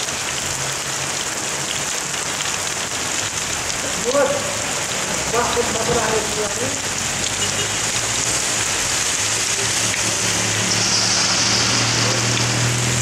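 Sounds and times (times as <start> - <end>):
heavy rain pouring: 0.0 - 13.0
engine hum: 8.2 - 13.0.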